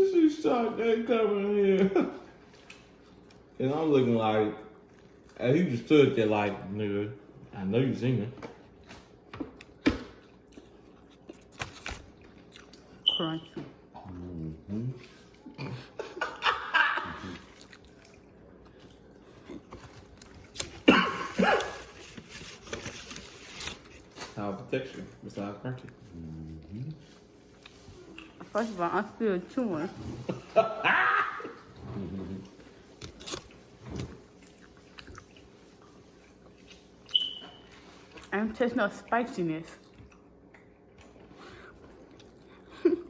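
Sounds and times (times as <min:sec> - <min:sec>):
chewing: 0:04.7 - 0:05.4, 0:08.7 - 0:13.0, 0:17.2 - 0:24.1, 0:32.0 - 0:37.2, 0:39.7 - 0:42.8.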